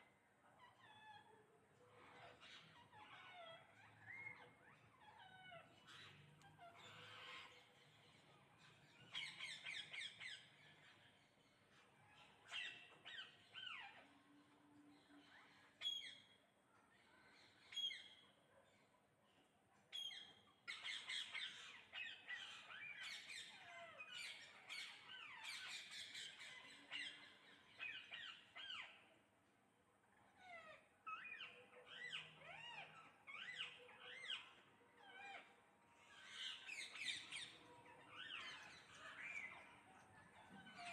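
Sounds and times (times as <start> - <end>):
parrots squawking: 2.0 - 7.8, 30.4 - 40.9.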